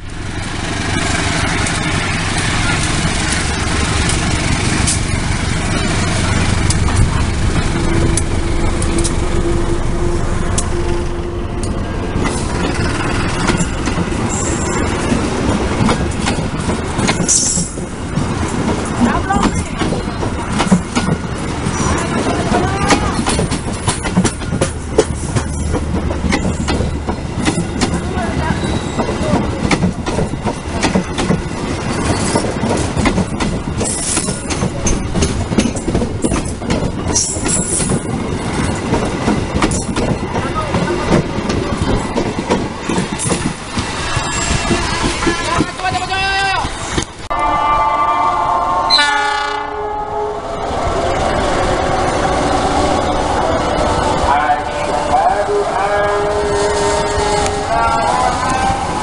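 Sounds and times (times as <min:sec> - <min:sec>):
train wheels clacking: 0:00.3 - 0:47.3
wheel squeals: 0:28.4 - 0:29.3.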